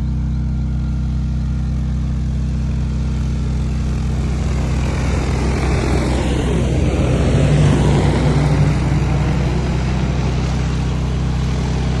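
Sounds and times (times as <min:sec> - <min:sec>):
motor humming: 0:00.0 - 0:12.0
rushing noise: 0:03.8 - 0:12.0.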